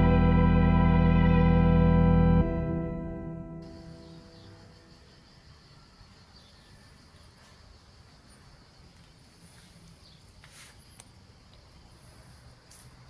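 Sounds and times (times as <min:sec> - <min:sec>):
insect drone: 0:02.4 - 0:13.0
bird chirps: 0:03.4 - 0:07.0.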